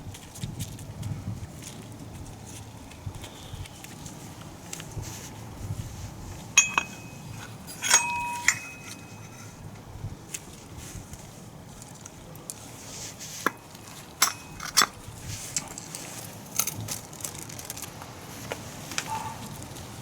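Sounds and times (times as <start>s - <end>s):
metallic tool clinks: 6.6s - 9.6s, 14.2s - 14.9s.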